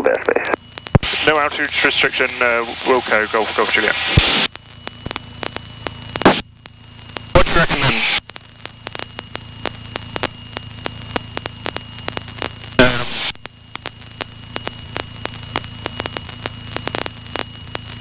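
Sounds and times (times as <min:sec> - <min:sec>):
aircraft engine drone: 0:00.0 - 0:18.0
crackling static clicks: 0:00.0 - 0:18.0.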